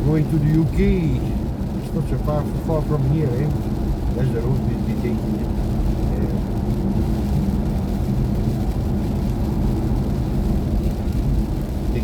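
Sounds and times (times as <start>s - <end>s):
road and tyre rumble in car cabin: 0.0s - 12.0s.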